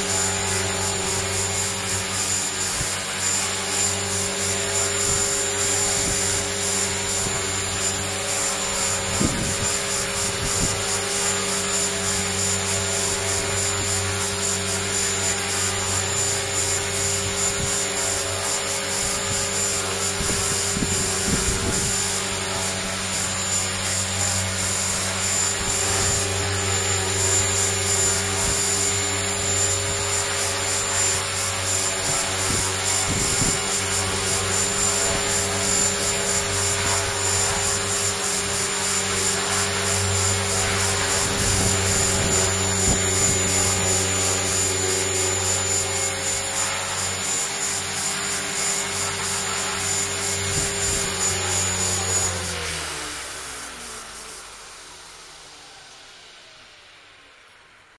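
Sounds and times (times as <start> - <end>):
electric motor tone: 0.0 - 57.5
rc helicopter rotor whir: 0.0 - 57.9.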